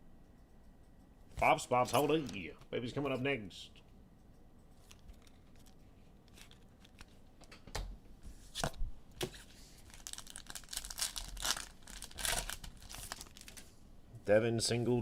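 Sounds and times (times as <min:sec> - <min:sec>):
wrapper crinkling: 0:04.8 - 0:07.2, 0:09.8 - 0:13.7
foil pack tearing: 0:09.9 - 0:13.6.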